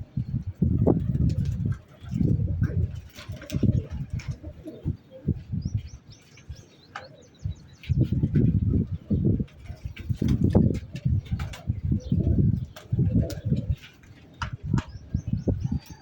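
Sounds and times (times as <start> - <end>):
pigeons cooing: 0.8 - 16.0
bird chirping: 5.0 - 9.3.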